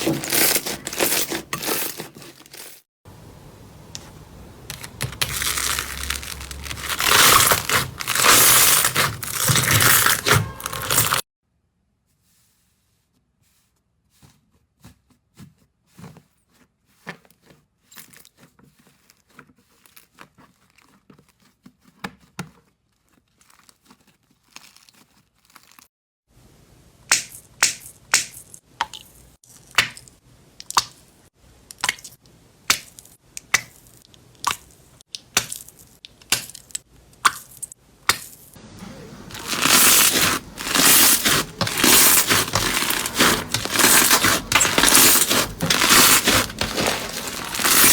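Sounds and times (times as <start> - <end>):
slime popping and crackling: 4.7 - 11.2, 39.3 - 47.9.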